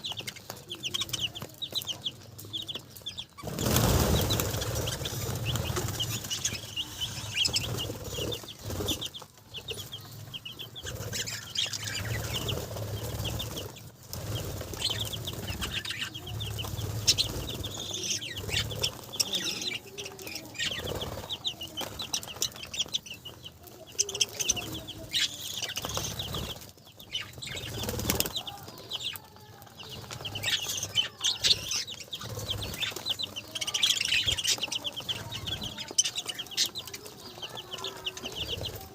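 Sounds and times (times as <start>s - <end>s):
budgerigars chattering: 0.0s - 38.9s
wings flapping and rustling: 0.0s - 38.9s.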